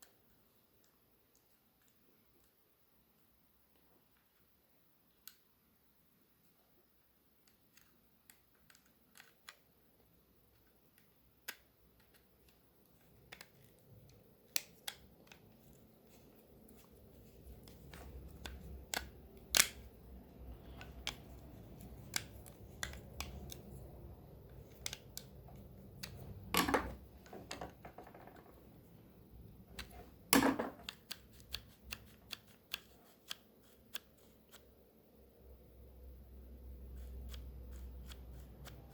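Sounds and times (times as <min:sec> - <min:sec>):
plastic parts clicking: 0:07.4 - 0:09.7, 0:17.5 - 0:28.6
plastic parts snapping: 0:17.6 - 0:19.9.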